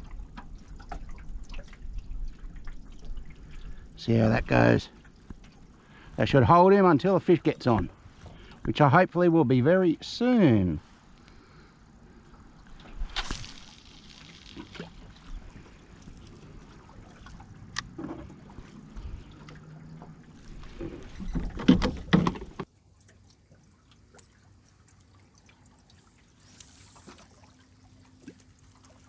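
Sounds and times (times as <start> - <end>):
water sloshing around boat: 0.0 - 8.8, 10.8 - 29.0
clatter with splashing: 13.1 - 15.2
gear knocking: 21.2 - 22.7.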